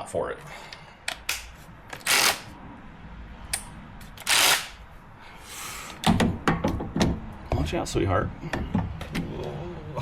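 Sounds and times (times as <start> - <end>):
impact wrench bursts: 2.0 - 2.5, 4.2 - 4.8.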